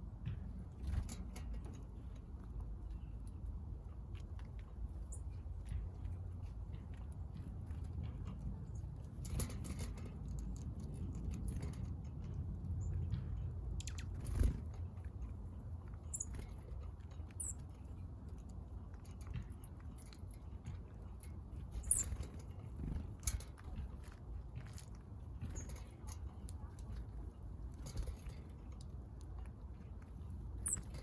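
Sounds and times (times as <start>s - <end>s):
birds pecking and cracking seed: 0.0s - 31.0s
high bird chirps: 16.1s - 16.4s, 17.4s - 17.6s, 21.8s - 22.2s, 30.6s - 31.0s.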